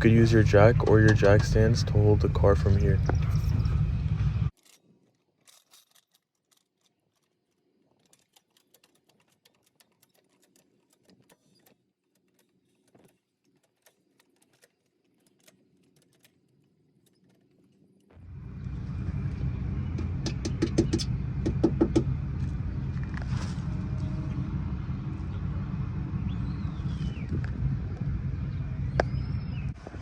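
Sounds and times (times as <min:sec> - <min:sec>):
faint irregular small clicks: 0:05.4 - 0:18.1.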